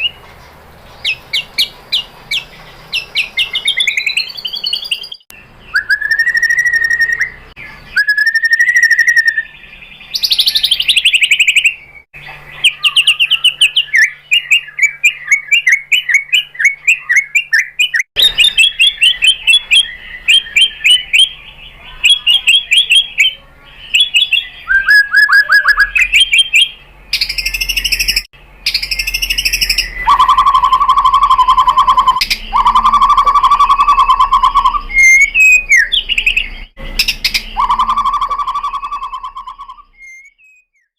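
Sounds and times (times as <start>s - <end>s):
songbird whistles and trills: 0.0s - 40.9s.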